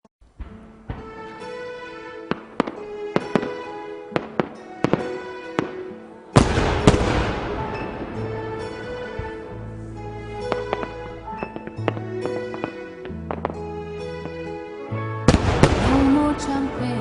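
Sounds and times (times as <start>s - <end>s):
fireworks banging: 0.2s - 9.6s, 10.3s - 14.5s, 15.3s - 16.9s
music: 0.2s - 17.0s
crackling hiss of fireworks: 0.4s - 8.3s.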